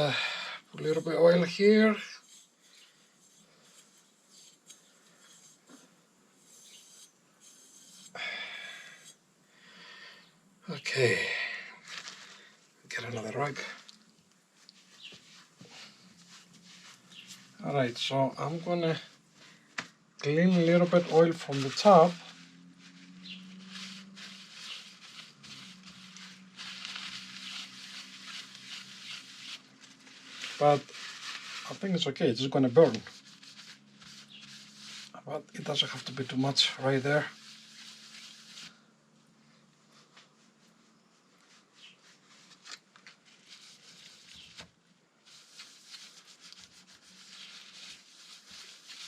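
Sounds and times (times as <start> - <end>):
rag rubbing on metal: 0.8 - 8.2.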